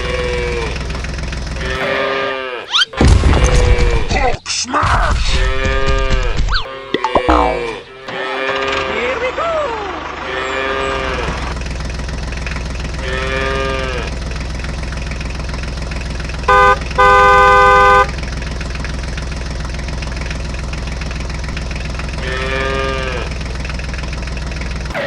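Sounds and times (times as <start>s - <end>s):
tractor engine running: 0.0s - 2.0s, 5.2s - 25.0s
cow mooing: 1.6s - 2.8s, 22.2s - 23.3s
vehicle horn honking: 16.5s - 18.2s.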